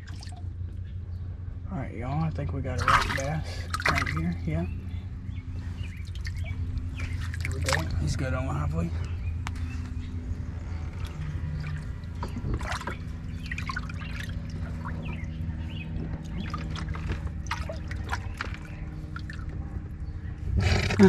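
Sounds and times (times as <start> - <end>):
small water splashes: 0.0 - 0.5, 2.8 - 4.5, 5.8 - 8.2, 11.0 - 19.6
low steady hum: 0.0 - 21.0
water trickling and dripping: 6.0 - 8.2, 11.0 - 15.4, 16.1 - 19.5.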